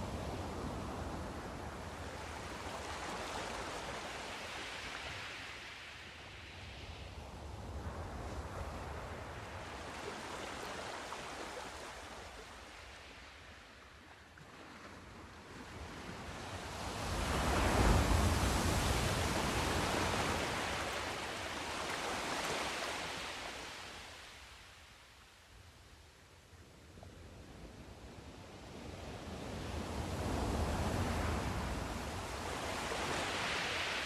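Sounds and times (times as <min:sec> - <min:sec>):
waves breaking: 0:17.0 - 0:24.8, 0:30.0 - 0:34.0.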